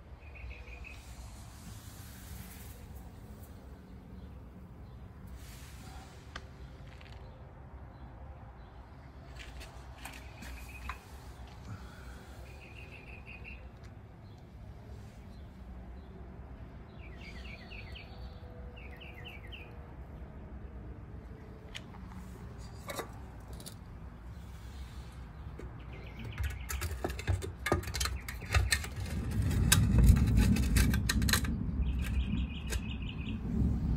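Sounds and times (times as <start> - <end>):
low rumble: 29.0 - 33.9.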